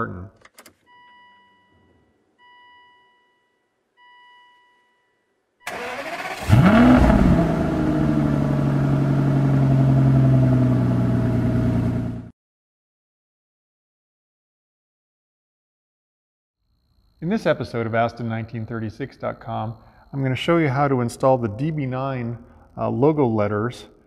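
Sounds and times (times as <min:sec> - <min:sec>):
car engine revving and idling: 0:05.7 - 0:12.3.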